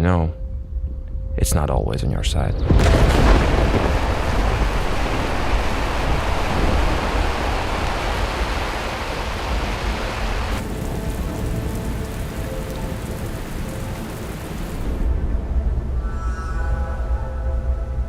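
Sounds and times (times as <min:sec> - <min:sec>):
soft music tones: 0:00.0 - 0:02.8, 0:10.6 - 0:18.0
deep rumble: 0:02.0 - 0:18.0
heavy rain falling: 0:02.8 - 0:15.1.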